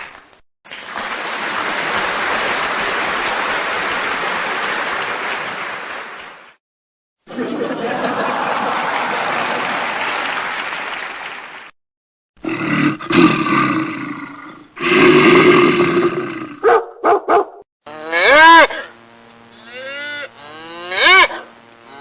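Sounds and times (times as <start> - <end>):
animal-like growling: 12.4 - 16.8.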